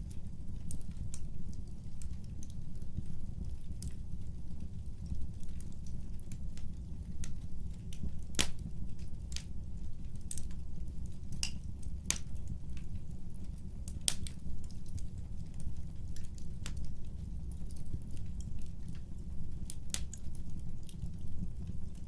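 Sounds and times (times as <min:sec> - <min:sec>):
low steady rumble: 0:00.0 - 0:22.0
wood fire crackling and popping: 0:00.0 - 0:22.0.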